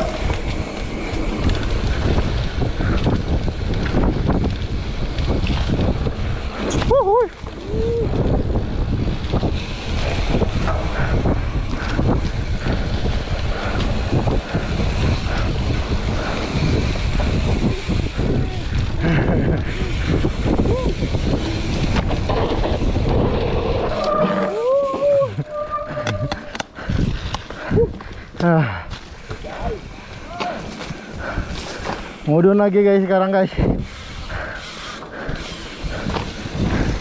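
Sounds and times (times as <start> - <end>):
bike rattling over bumps: 0.0 - 37.0
wind rushing over microphone: 0.0 - 37.0
whining tone with gliding pitch: 23.2 - 26.7.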